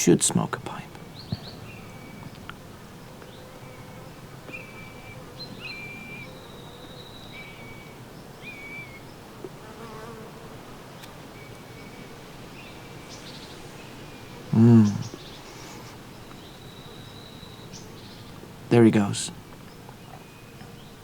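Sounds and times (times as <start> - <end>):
insect buzzing: 2.6 - 18.3.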